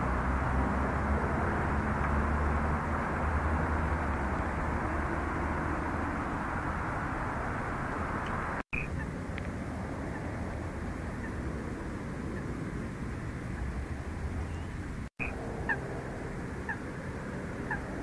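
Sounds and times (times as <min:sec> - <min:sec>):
low outdoor rumble: 0:00.0 - 0:18.0
faint bird chirps: 0:08.7 - 0:09.1, 0:14.3 - 0:15.8.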